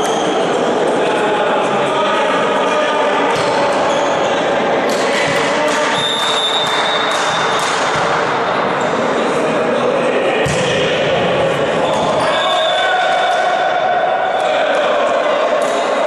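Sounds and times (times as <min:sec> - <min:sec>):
noise of spectators: 0:00.0 - 0:16.0
ball bouncing on a court: 0:03.3 - 0:03.6, 0:04.9 - 0:08.3, 0:10.4 - 0:10.9.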